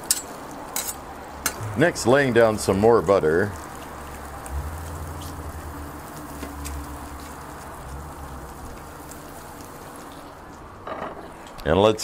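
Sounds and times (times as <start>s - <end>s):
bacon sizzling on griddle: 0.0s - 11.6s
low steady hum: 1.5s - 10.8s.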